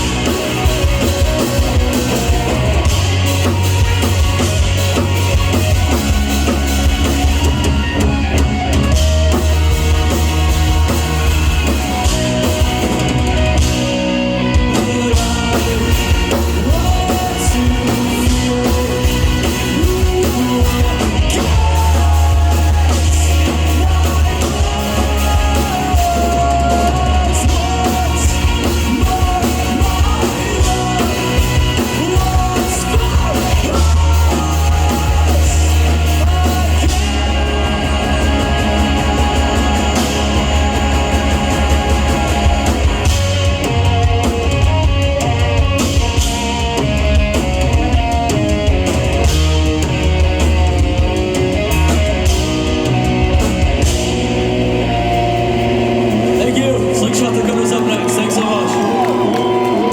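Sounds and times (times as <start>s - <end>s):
rock band playing live: 0.0s - 59.9s
person singing: 9.0s - 44.5s.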